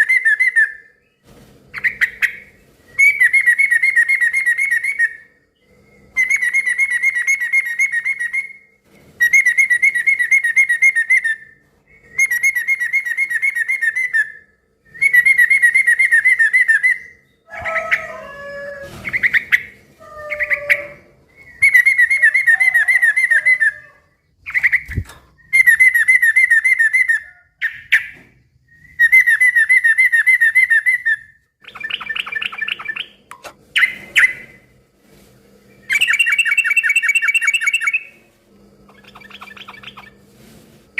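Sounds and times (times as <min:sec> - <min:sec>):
bird chattering trill: 0:38.9 - 0:40.2.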